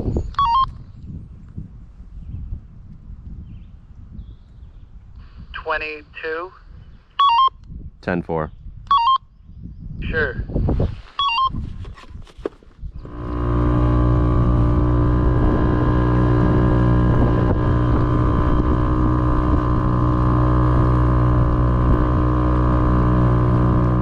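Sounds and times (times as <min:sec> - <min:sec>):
outboard motor running: 0:12.9 - 0:24.0.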